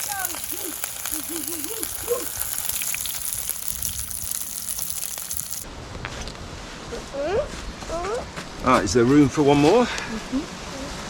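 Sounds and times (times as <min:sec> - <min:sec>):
sausages sizzling in a pan: 0:00.0 - 0:05.7.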